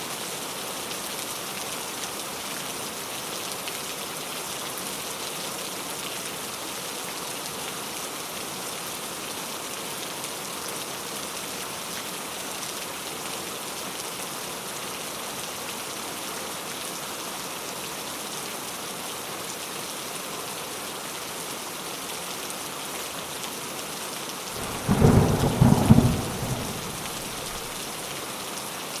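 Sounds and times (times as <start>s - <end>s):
steady rain hiss: 0.0s - 29.0s
thunder rumble: 24.6s - 27.9s.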